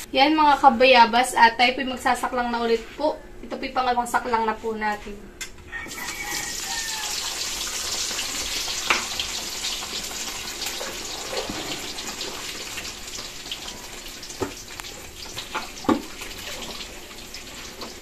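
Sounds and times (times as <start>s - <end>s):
food deep-frying in oil: 5.8s - 18.0s.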